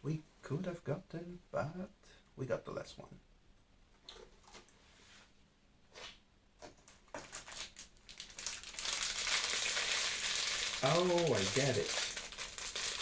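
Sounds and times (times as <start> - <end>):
packaging crinkling: 6.8 - 13.0.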